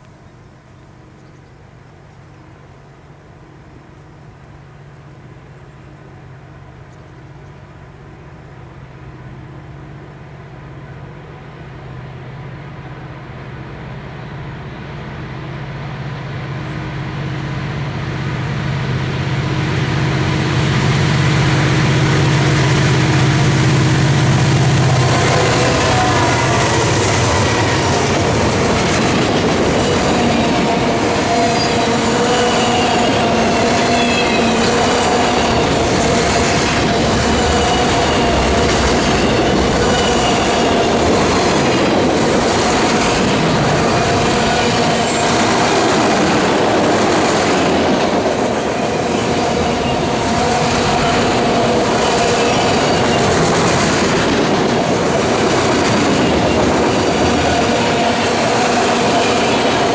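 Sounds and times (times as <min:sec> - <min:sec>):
train wheels clickety-clack: 0:18.8 - 0:59.9
freight cars rolling: 0:23.5 - 0:59.9.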